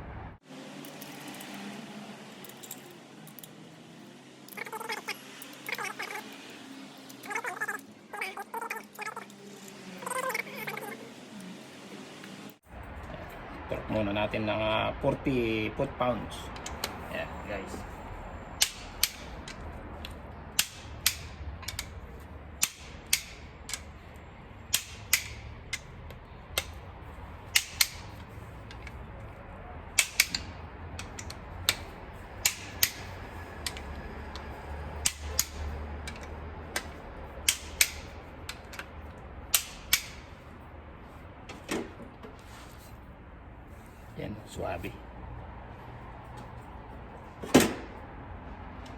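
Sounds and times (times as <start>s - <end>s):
torque wrench clicking: 16.6s - 17.0s, 18.6s - 29.0s, 29.9s - 40.4s.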